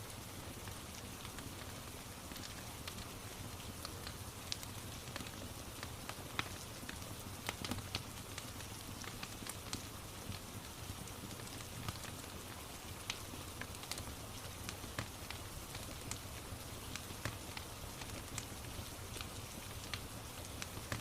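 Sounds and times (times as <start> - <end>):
fireplace crackling and popping: 0.0 - 21.0.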